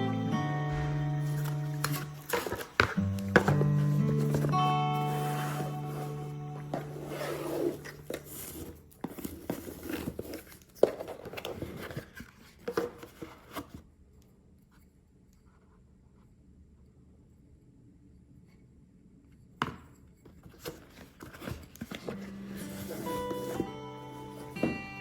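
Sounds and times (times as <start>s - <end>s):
background music: 0.0s - 8.6s, 22.1s - 25.0s
packaging rustling and scraping: 0.7s - 13.9s, 20.2s - 25.0s.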